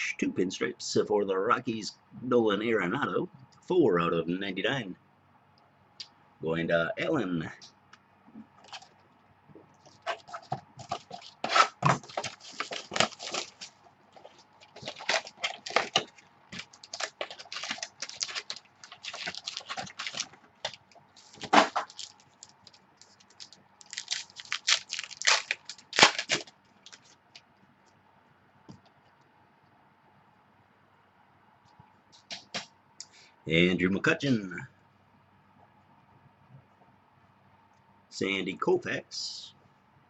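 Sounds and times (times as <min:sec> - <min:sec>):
plastic packaging crinkling: 0:08.6 - 0:09.1, 0:09.7 - 0:27.4.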